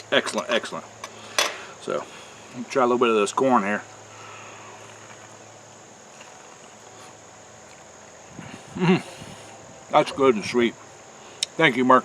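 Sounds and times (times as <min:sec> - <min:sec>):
insects chirring: 0:00.0 - 0:12.0
person murmuring: 0:08.4 - 0:10.7.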